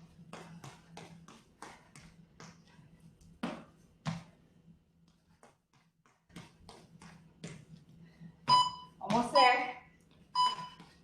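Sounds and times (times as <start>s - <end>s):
steady low hum: 0.0s - 11.0s
feet landing on floor: 3.3s - 4.4s.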